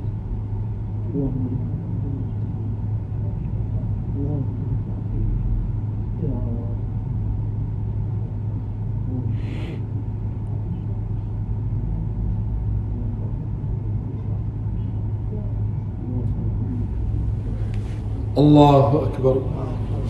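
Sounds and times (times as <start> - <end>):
low microphone hum: 0.0 - 20.0
faint murmuring: 8.1 - 20.0.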